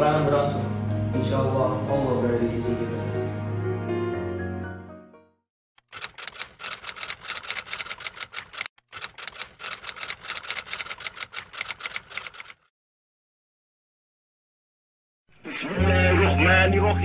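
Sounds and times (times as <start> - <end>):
typewriter keys clacking: 5.8 - 12.7.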